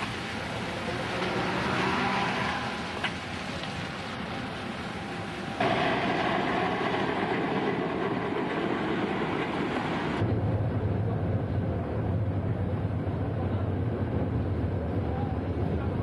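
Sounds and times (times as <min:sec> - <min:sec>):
passenger train on rails: 0:00.0 - 0:16.0.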